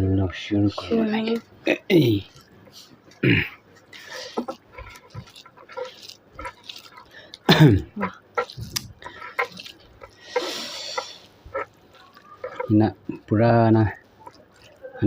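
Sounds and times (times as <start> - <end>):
hissy slurp: 4.0 - 12.8
wet mouth smacks and chewing: 8.1 - 12.7.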